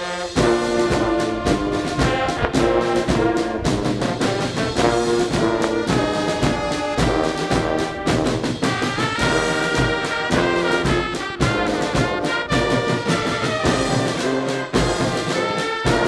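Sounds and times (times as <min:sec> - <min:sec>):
brass band playing a march: 0:00.0 - 0:16.0
bass drum beating: 0:00.4 - 0:12.8.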